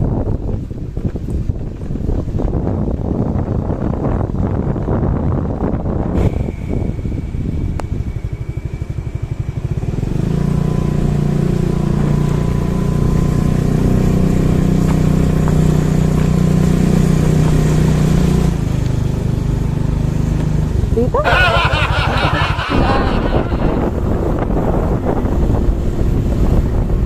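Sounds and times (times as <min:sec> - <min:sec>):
motorcycle engine: 0:05.5 - 0:27.0.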